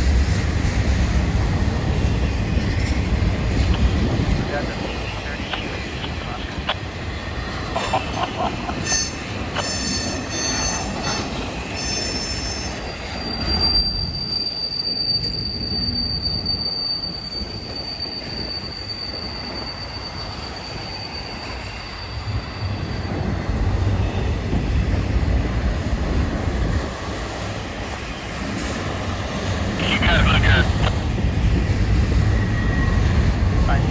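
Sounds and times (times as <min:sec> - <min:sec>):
train cars rumbling on rails: 0:00.0 - 0:33.9
high-pitched wheel squeal: 0:08.7 - 0:23.2.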